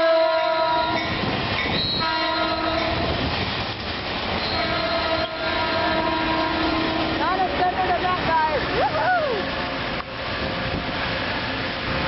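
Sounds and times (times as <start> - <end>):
train chord horn blast: 0.0 - 1.0, 1.9 - 3.1, 4.4 - 7.7
train passing with rumble: 0.0 - 12.0.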